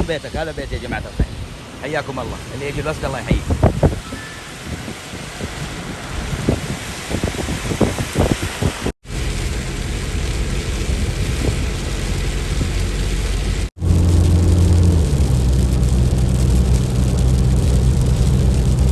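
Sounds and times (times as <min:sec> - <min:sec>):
wind gusts on microphone: 0:00.0 - 0:14.7
rain: 0:00.0 - 0:18.9
loud low rumble: 0:09.1 - 0:18.9.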